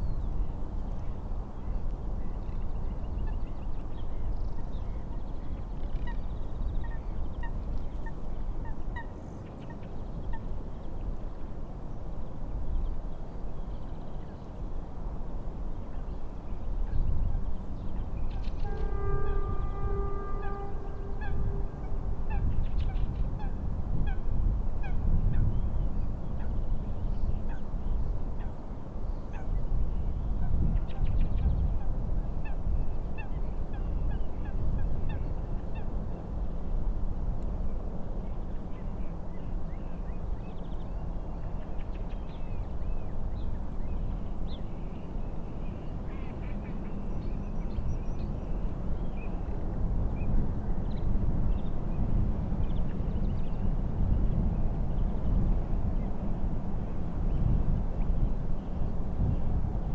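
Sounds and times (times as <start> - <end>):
wind and waves rumble: 10.1 - 59.9
train horn: 18.4 - 22.8.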